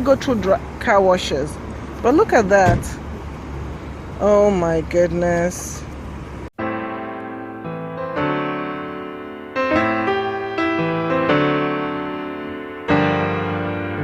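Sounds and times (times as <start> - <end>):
piano chords ringing: 6.6 - 14.0.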